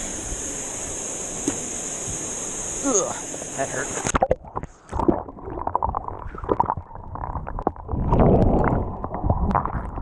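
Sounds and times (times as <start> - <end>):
water sloshing and gurgling: 3.2 - 10.0.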